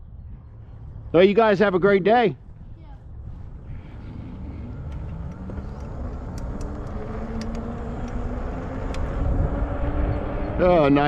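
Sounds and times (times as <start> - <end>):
wind rumble on microphone: 0.0 - 11.0
electric motor whining: 3.8 - 10.4
sharp ticks: 4.8 - 9.2.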